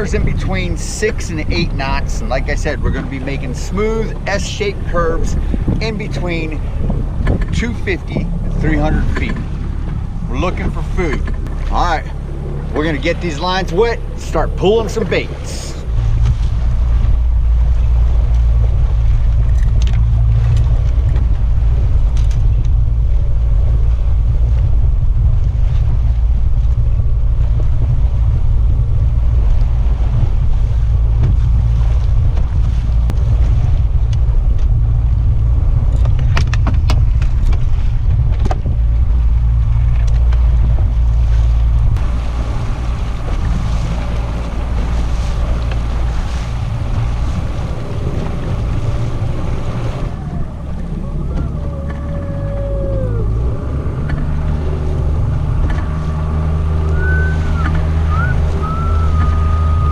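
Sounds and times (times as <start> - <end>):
boat engine running: 0.0 - 59.9
water noise: 0.0 - 59.9
wind on microphone: 0.0 - 59.9.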